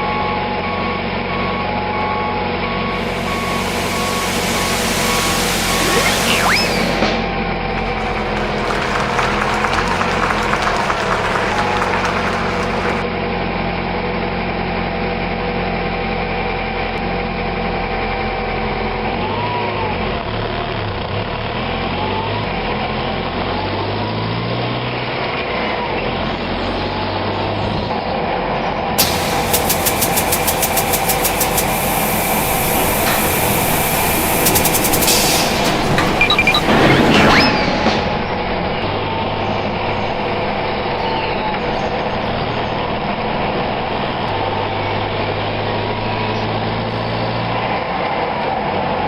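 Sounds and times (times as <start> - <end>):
heavy truck engine revving: 0.1 - 13.1, 29.0 - 49.0
fast rhythmic clatter: 3.0 - 13.0, 29.0 - 37.4.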